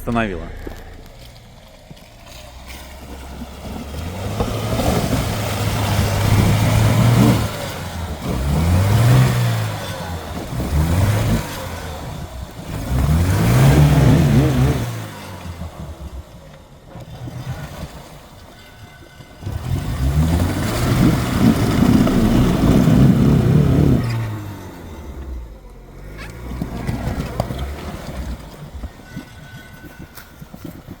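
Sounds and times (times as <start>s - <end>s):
engine revving under load: 2.3s - 16.3s, 19.4s - 28.8s.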